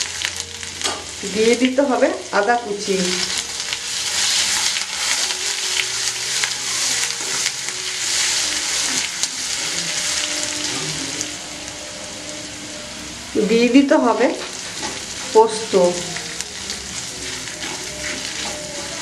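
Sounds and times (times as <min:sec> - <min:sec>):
garlic sizzling in oil: 0:00.0 - 0:19.0
metal spatula scraping pan: 0:16.6 - 0:19.0.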